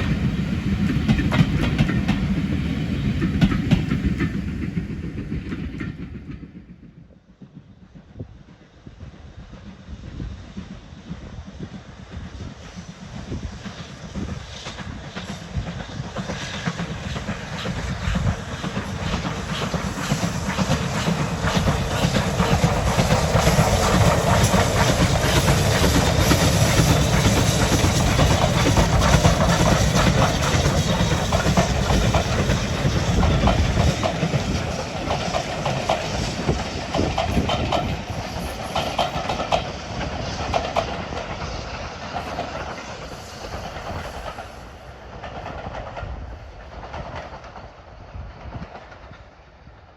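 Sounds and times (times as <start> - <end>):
wheels clacking over rail joints: 0.0 - 6.6, 16.1 - 44.4
steam locomotive passing: 0.0 - 49.9
steam hiss: 8.5 - 48.5.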